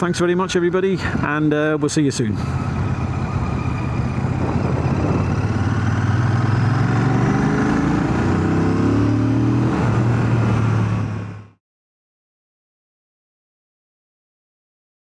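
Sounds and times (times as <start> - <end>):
wind noise: 2.6 - 11.1
motorcycle engine revving: 2.8 - 11.6.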